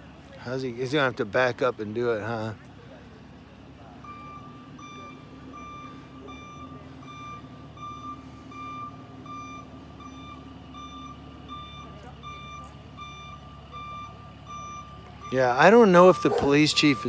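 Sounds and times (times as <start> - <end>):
truck engine running: 0.0 - 17.0
reversing alarm beeping: 4.0 - 17.0.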